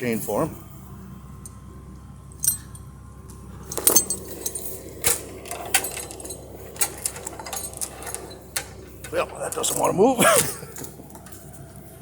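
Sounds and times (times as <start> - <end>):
chain links clinking: 2.4 - 2.9, 3.6 - 11.7.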